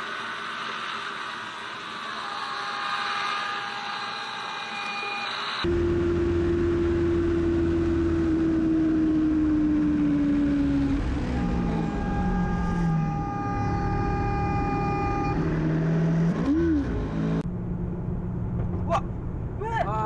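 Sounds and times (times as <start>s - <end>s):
steady high-pitched tone: 1.6s - 15.9s
vehicle engine and road noise: 5.6s - 20.0s.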